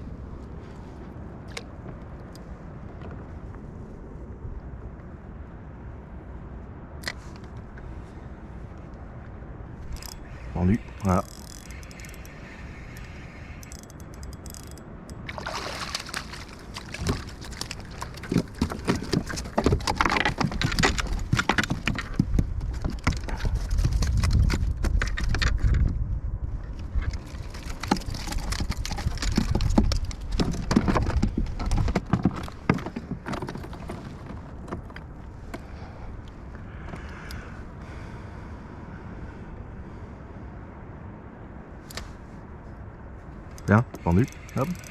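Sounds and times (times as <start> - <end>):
water sloshing around a kayak: 9.9 - 23.9.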